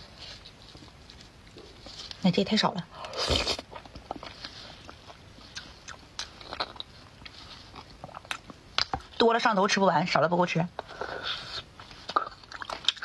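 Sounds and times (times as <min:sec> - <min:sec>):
person chewing with wet smacks: 0:03.2 - 0:09.2, 0:10.8 - 0:13.0.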